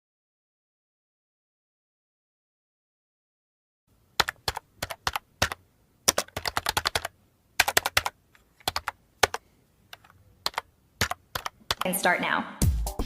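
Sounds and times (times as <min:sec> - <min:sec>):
computer keyboard typing: 0:04.2 - 0:12.0.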